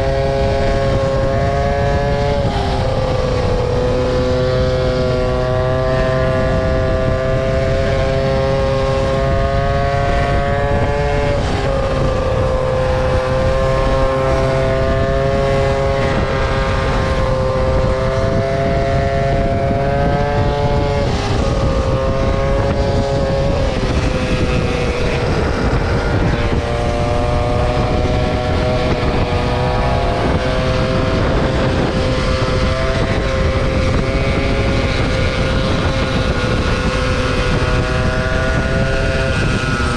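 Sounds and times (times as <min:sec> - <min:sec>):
wind and road noise: 0:00.0 - 0:39.9
motor scooter engine running: 0:10.2 - 0:39.9.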